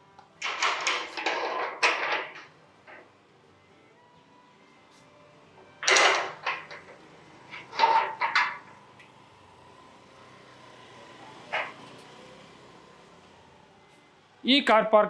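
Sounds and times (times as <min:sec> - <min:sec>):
gate rattling knocks: 0:00.4 - 0:03.0, 0:05.8 - 0:08.7, 0:11.5 - 0:11.8
metal gate clanking: 0:00.4 - 0:03.0, 0:05.8 - 0:08.8, 0:11.5 - 0:11.9.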